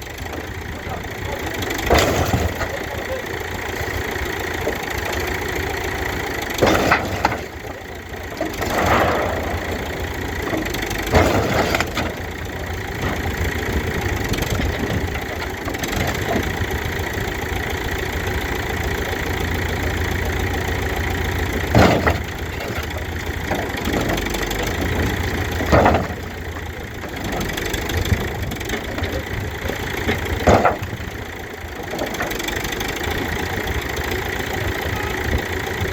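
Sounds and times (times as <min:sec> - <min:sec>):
backhoe engine running: 0:00.0 - 0:35.9
loud crashes of metal smashing: 0:08.4 - 0:12.3.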